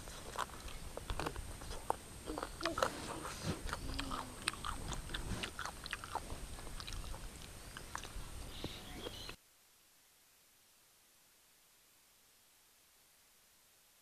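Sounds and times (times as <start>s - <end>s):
person chewing food: 0.0s - 8.4s
mouth clicks and smacks: 0.0s - 8.7s.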